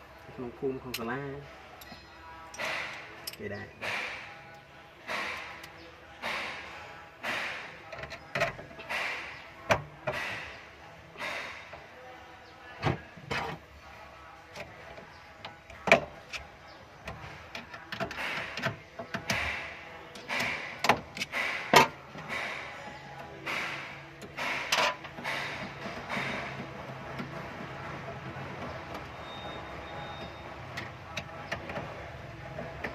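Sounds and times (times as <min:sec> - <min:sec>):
tools knocking and clicking: 0:17.0 - 0:27.3.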